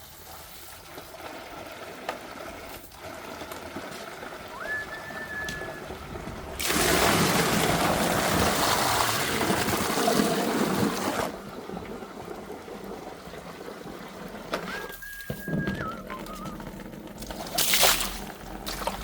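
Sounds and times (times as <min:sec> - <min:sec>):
steady high whistle: 0:04.5 - 0:05.9, 0:14.7 - 0:16.7
water jet spraying: 0:06.6 - 0:11.3.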